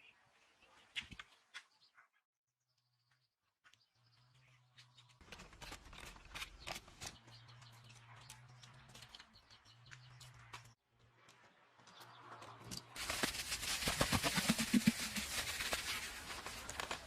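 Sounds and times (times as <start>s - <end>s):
small clicks and scrapes: 4.8s - 13.3s.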